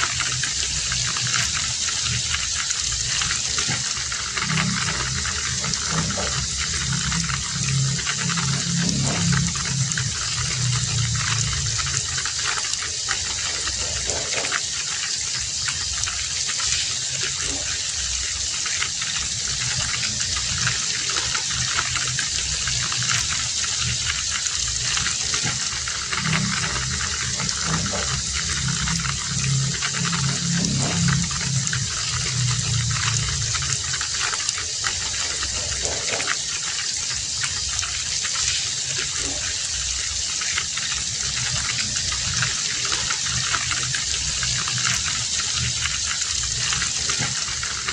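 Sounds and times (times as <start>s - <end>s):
low hum: 0.0s - 14.6s, 19.0s - 38.0s
heavy rain falling: 0.0s - 47.9s.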